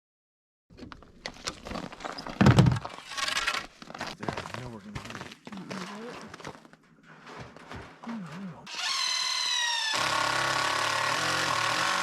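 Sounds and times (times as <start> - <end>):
power drill whining: 8.7 - 12.0.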